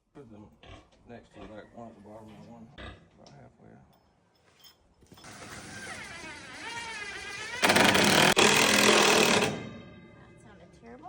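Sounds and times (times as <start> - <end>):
electric motor whining roughly: 5.2 - 9.9.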